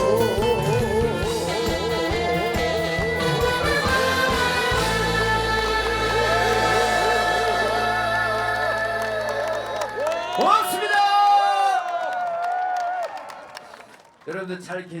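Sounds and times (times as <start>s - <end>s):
live band playing trot music: 0.0s - 9.7s.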